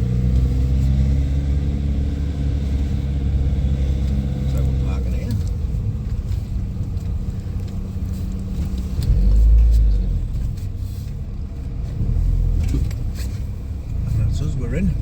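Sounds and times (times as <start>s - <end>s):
low road rumble: 0.0s - 15.0s
van engine running: 0.0s - 15.0s.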